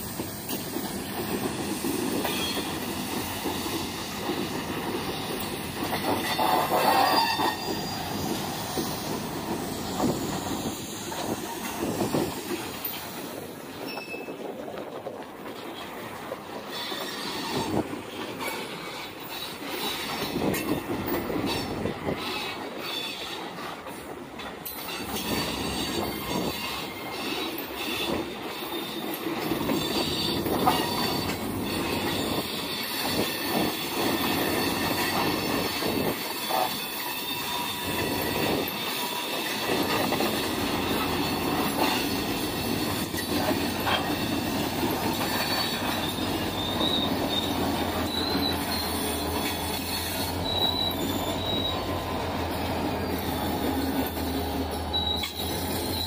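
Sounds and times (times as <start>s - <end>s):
steel wheels squealing: 0.0s - 14.6s, 16.5s - 24.0s, 24.6s - 56.0s
train cars rolling on rails: 0.0s - 56.0s.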